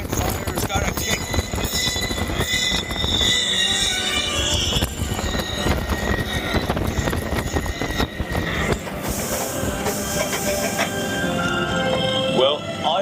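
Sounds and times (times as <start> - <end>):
roller coaster rumbling and clattering: 0.0 - 11.0.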